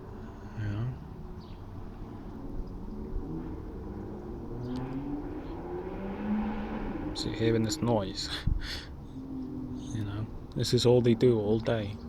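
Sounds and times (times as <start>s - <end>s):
vehicle engine accelerating: 2.4s - 8.3s.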